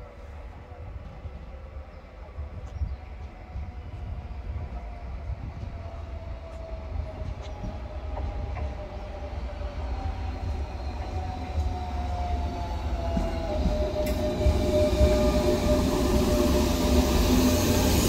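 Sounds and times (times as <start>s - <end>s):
train rumble: 0.0s - 18.0s
train whine falling in pitch: 10.4s - 18.0s.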